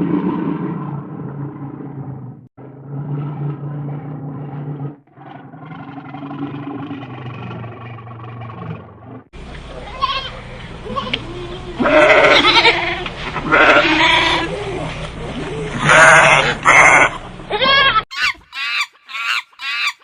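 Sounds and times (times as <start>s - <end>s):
goat bleating: 9.8s - 14.9s, 15.8s - 18.3s.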